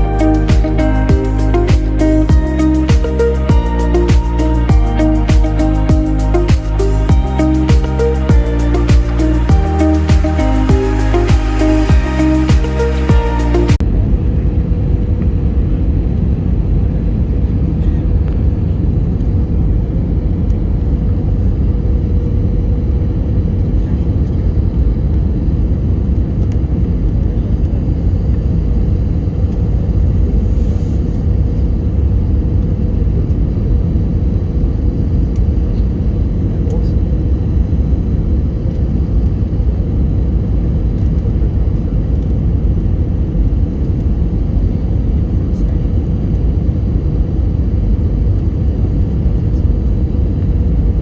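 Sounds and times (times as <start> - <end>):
background music: 0.0 - 13.8
airplane cabin rumble: 13.1 - 51.0.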